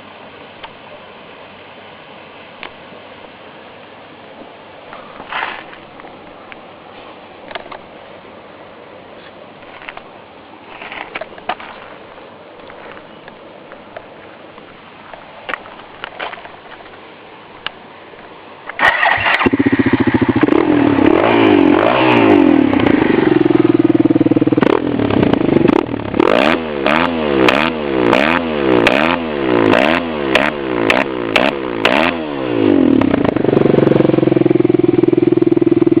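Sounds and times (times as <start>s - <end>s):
exhaust crackles: 18.8s - 36.0s
motorcycle engine revving and idling: 18.8s - 36.0s.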